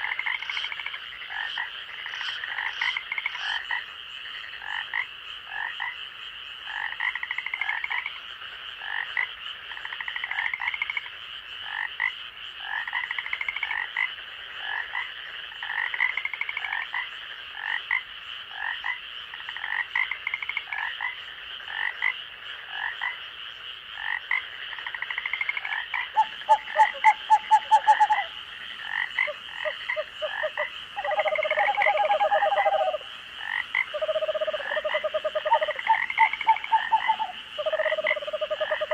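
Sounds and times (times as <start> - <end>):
frogs calling: 0.0 - 38.9
high insect drone: 21.6 - 38.9
low pulsed frog call: 24.0 - 38.9
frog rapid pulsed call: 24.8 - 38.9.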